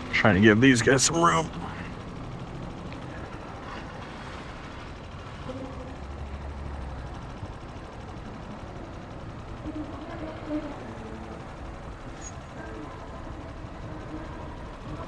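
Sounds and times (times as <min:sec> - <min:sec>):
wind and road noise: 0:00.0 - 0:10.1
engine hum: 0:00.0 - 0:15.0.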